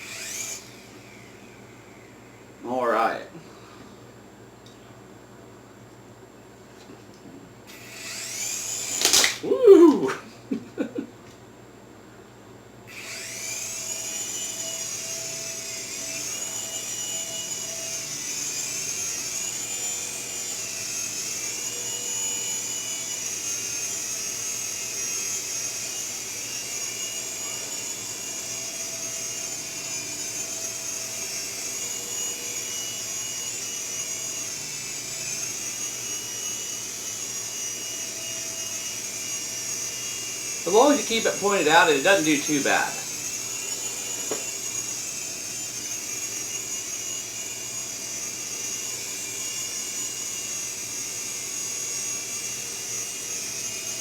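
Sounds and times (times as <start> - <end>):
toy helicopter rotors whining: 0.0 - 3.2, 7.7 - 10.2, 12.9 - 54.0.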